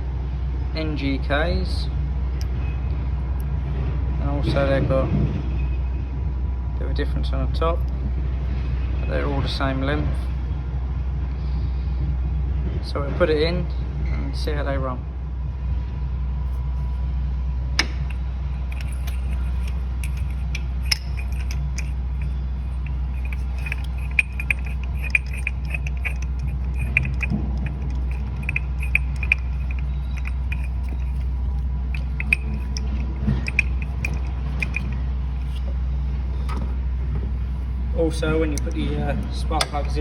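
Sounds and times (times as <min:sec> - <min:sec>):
steady low hum: 0:00.0 - 0:40.0
quick ticks: 0:17.8 - 0:35.6
hand tools clicking and rattling: 0:17.8 - 0:35.7, 0:38.4 - 0:40.0.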